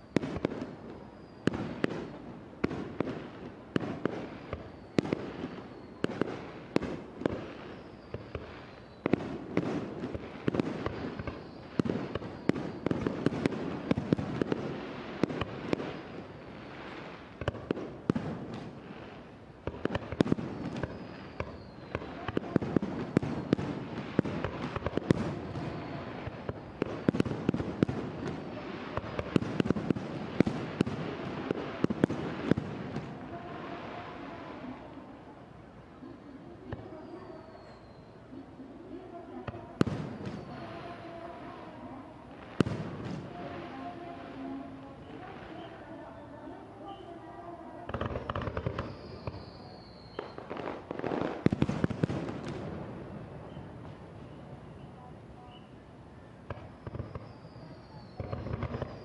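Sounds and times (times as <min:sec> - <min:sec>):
continuous wash of noise: 0:00.0 - 0:48.6
fireworks bursting: 0:00.0 - 0:55.8, 0:56.4 - 0:59.0
firework whistle: 0:04.0 - 0:06.4, 0:07.6 - 0:09.4, 0:10.8 - 0:13.6, 0:20.3 - 0:24.4, 0:37.0 - 0:38.2, 0:48.6 - 0:50.5, 0:56.6 - 0:59.0.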